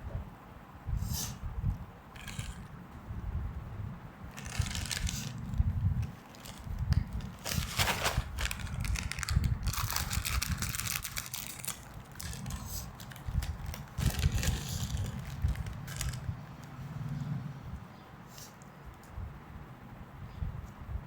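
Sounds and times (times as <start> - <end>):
low handling rumble: 1.5 - 18.0
plastic wrappers crinkling: 4.3 - 16.7.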